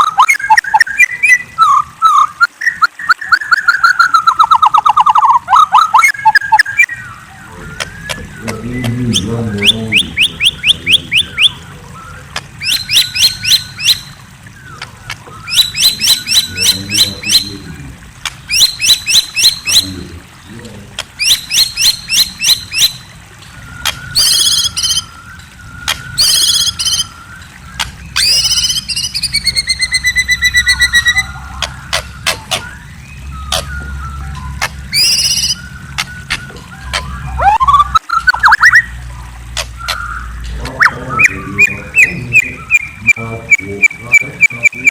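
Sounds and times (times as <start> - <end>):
songbird chirping and whistling: 0.0 - 20.0, 21.0 - 44.9.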